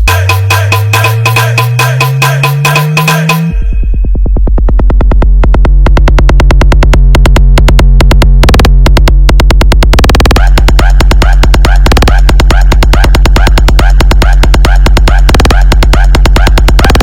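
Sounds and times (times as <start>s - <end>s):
electronic dance music: 0.0s - 4.1s, 4.9s - 17.0s.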